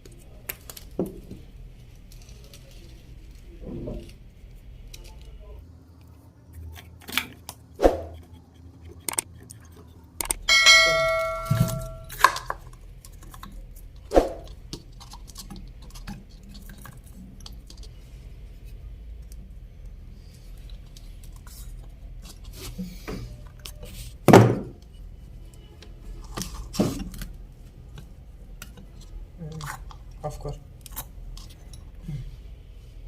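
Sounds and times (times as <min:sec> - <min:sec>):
metal clanging: 0:10.5 - 0:12.3.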